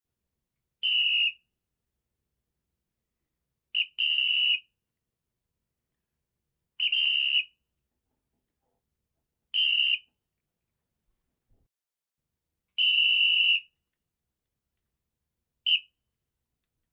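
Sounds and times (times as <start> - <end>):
high shrill whistle tone: 0.8 - 1.5, 3.8 - 4.7, 6.8 - 7.6, 9.5 - 10.1, 12.8 - 13.8.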